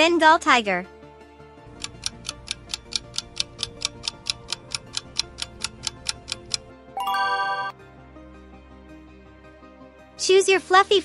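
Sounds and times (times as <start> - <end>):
soft background music: 0.0 - 11.0
clock ticking quickly: 1.7 - 6.6
short bright chime: 7.0 - 7.8.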